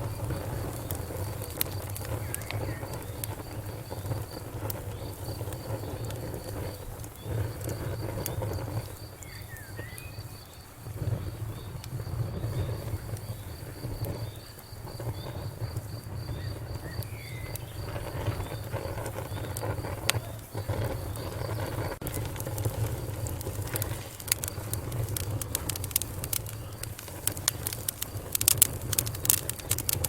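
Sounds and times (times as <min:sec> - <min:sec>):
fire crackling and popping: 0:00.0 - 0:30.0.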